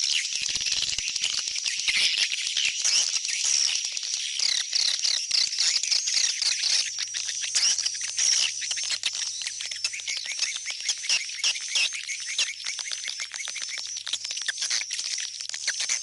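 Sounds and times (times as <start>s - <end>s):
swiftlet chirps and twittering: 7.6s - 16.0s.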